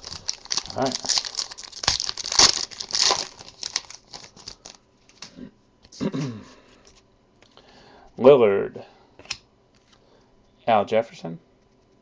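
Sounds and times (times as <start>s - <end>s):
card pack wrapper crinkling and tearing: 0.0s - 5.3s.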